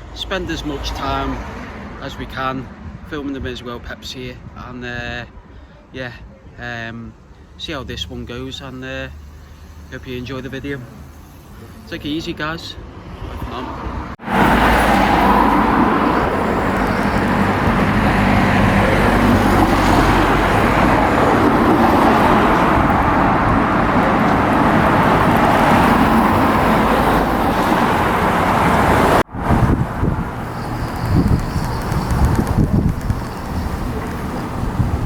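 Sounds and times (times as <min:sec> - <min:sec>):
electric train rushing rumble: 0:12.8 - 0:35.0.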